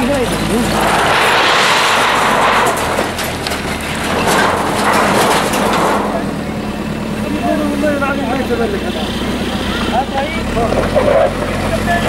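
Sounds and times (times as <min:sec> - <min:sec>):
stone and debris crashing: 0:00.0 - 0:06.7
bulldozer diesel engine running: 0:00.0 - 0:12.0.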